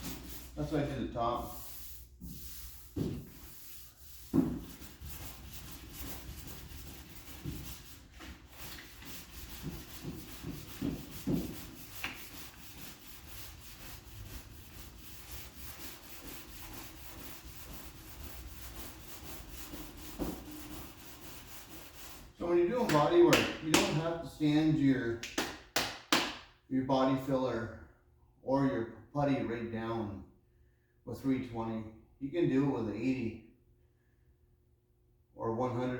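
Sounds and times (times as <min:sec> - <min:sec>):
hand sanding strokes: 0:00.0 - 0:23.9.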